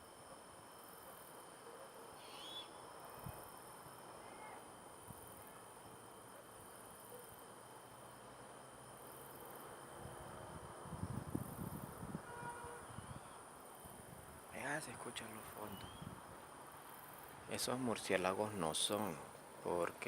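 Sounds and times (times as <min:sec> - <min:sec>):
night insects trilling: 0:00.0 - 0:20.0
high wavering animal screech: 0:02.2 - 0:02.7.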